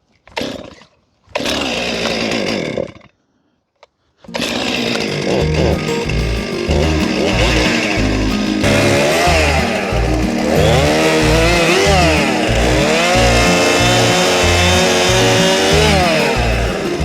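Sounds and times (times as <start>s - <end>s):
chainsaw cutting branches: 0.1s - 3.1s, 4.2s - 17.0s
background music with bass line: 5.3s - 17.0s.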